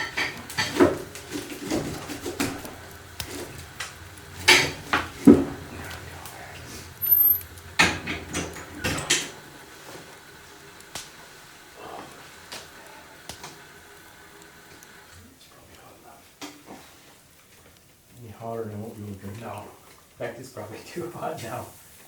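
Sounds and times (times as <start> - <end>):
firewood knocking and clunking: 0.0 - 11.4.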